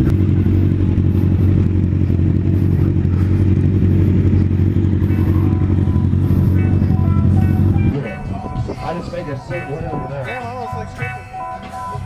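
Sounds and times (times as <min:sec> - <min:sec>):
motorcycle engine rumbling: 0:00.0 - 0:12.0
wind rush on microphone: 0:06.0 - 0:10.3.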